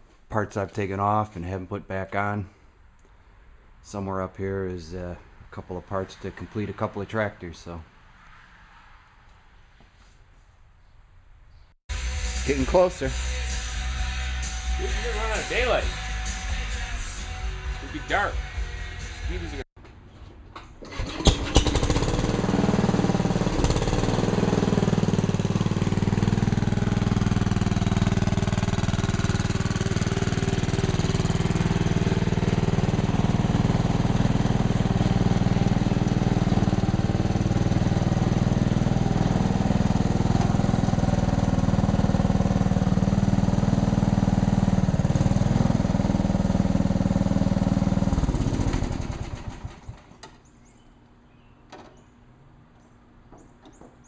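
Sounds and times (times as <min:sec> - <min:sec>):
garden tractor engine running: 0:20.8 - 0:50.3.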